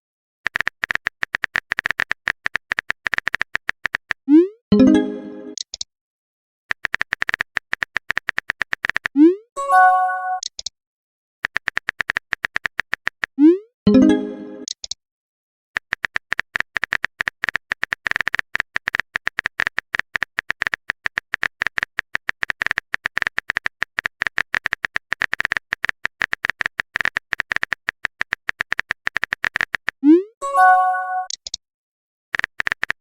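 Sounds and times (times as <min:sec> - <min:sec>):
phone keyboard typing clicks: 0:00.5 - 0:04.2, 0:06.7 - 0:09.2, 0:11.4 - 0:13.4, 0:15.8 - 0:30.0, 0:31.2 - 0:31.6, 0:32.3 - 0:33.0.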